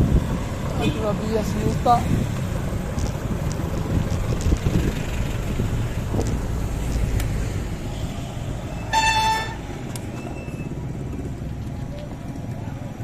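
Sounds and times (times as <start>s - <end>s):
wind and road rumble: 0.0s - 13.0s
short horn beep: 8.8s - 9.6s.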